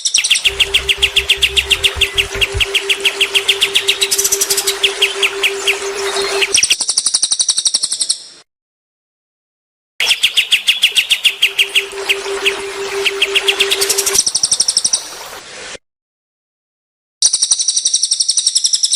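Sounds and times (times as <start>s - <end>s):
songbird chirping: 0.4s - 6.7s, 10.2s - 14.2s
steady low hum: 0.5s - 6.6s, 11.3s - 14.2s.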